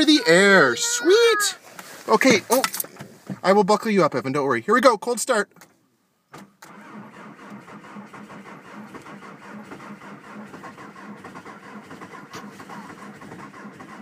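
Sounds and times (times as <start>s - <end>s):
starter cranking engine: 6.6s - 14.0s.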